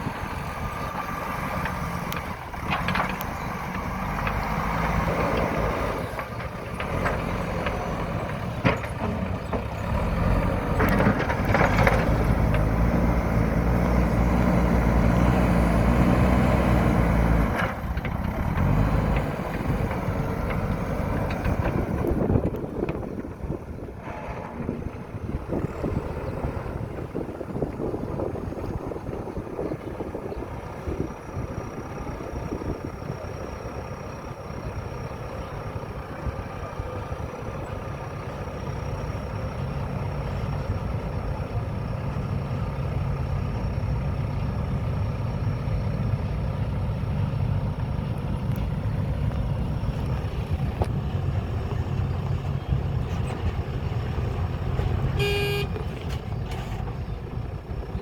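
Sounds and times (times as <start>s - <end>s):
wind buffeting microphone: 0.0s - 37.7s
diesel engine running: 0.0s - 58.0s.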